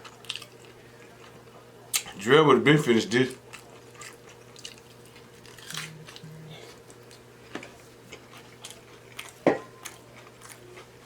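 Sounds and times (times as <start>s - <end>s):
chewing and mouth smacking: 3.5s - 11.0s.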